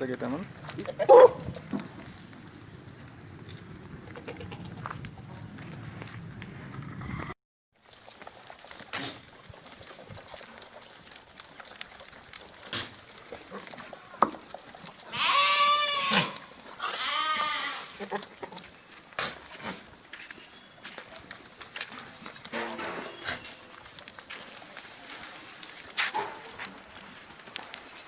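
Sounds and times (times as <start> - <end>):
goat bleating: 15.1 - 18.6.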